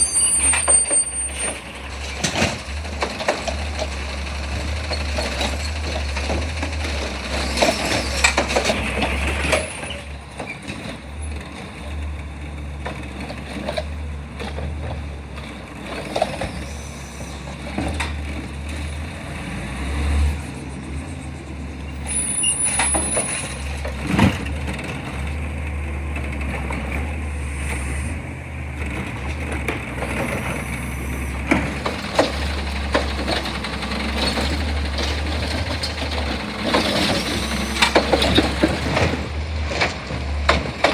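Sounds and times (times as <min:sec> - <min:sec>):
garbage truck diesel engine: 0:00.0 - 0:40.9
knocks and clanks: 0:28.7 - 0:40.9.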